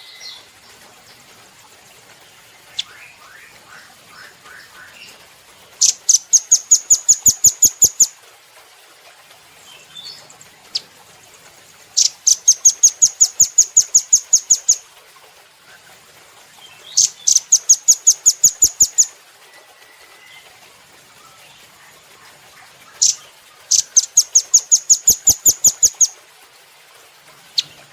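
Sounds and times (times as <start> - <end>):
bird singing fast trills: 5.8 - 8.1, 12.0 - 14.8, 16.6 - 19.1, 22.8 - 26.2.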